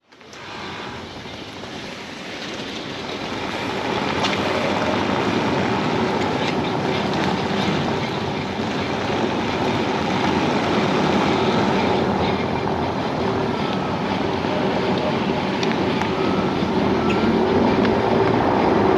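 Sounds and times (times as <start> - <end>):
road and tyre noise: 0.0 - 18.9.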